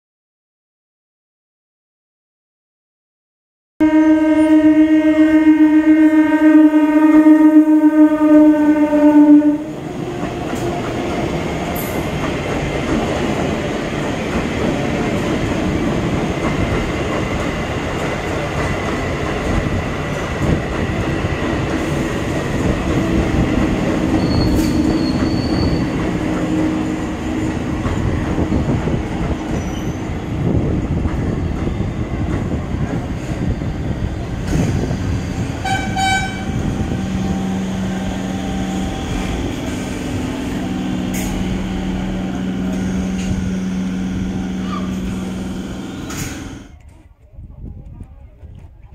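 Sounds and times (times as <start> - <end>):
train horn: 3.8 - 9.8, 35.6 - 39.2
train wheels rumbling on rails: 7.8 - 48.9
thin high squeal: 24.2 - 25.9.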